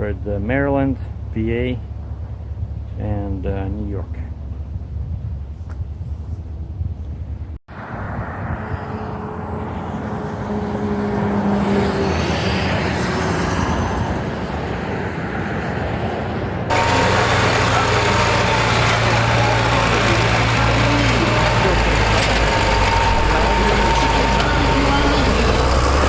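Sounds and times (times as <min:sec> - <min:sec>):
vehicle engine: 0:07.7 - 0:15.1, 0:16.7 - 0:26.0.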